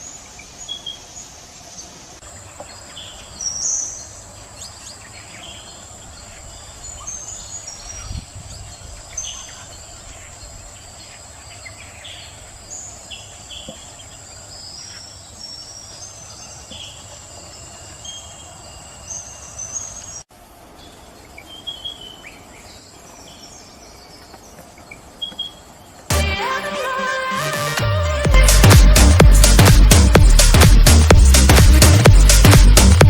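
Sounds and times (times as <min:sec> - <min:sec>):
birds chirping: 0:00.0 - 0:33.0
loud music: 0:26.1 - 0:33.0.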